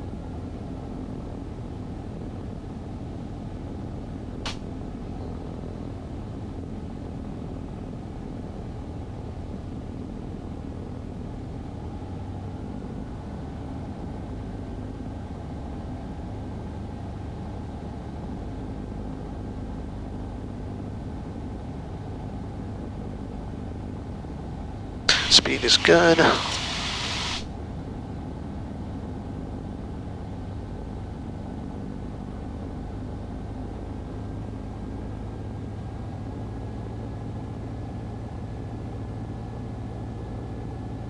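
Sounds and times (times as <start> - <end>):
aircraft engine and propeller droning: 25.1 - 27.5.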